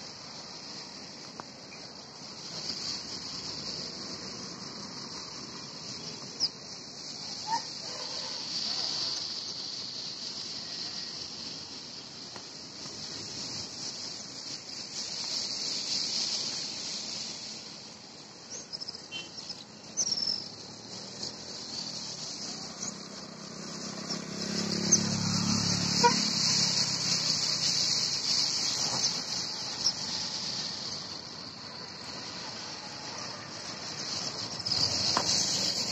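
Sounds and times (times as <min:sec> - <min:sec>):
insects chorus: 0:00.0 - 0:35.9
short bird chirps: 0:18.5 - 0:20.6.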